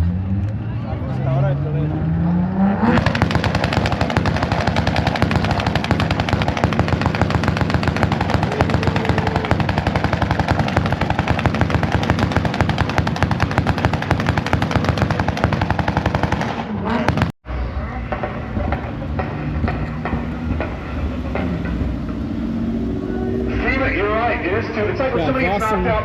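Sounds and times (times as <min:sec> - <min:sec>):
exhaust pops and bangs: 0:02.8 - 0:17.4, 0:18.1 - 0:22.0.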